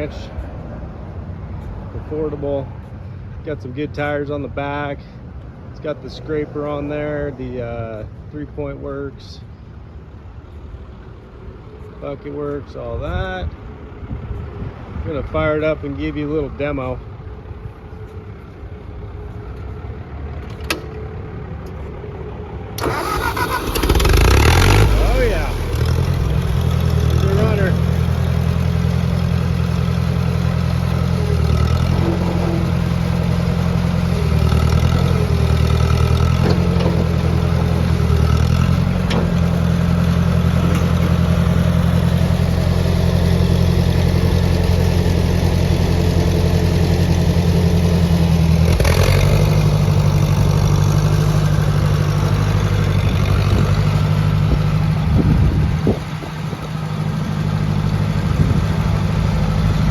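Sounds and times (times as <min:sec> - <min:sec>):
tractor engine running: 0:22.8 - 0:59.9.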